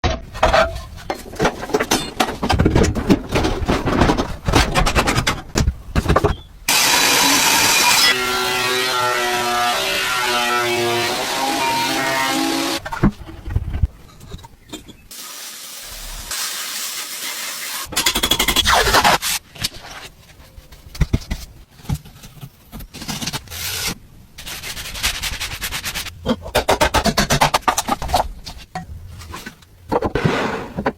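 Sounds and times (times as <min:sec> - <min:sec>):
hard objects scraping and clattering: 0:00.0 - 0:15.1.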